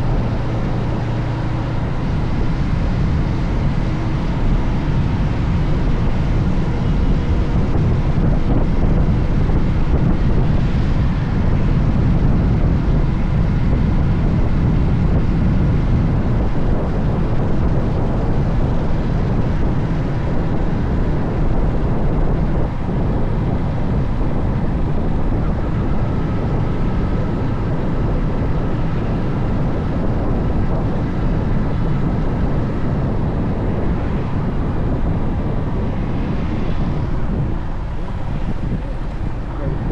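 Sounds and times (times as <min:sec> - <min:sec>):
wind rush on microphone: 0:00.0 - 0:39.9.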